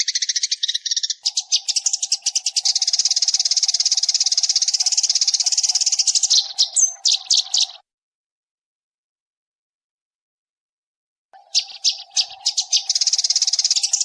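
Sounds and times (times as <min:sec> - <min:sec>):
sparrow lure call chirps: 0:00.0 - 0:07.8, 0:11.4 - 0:14.0.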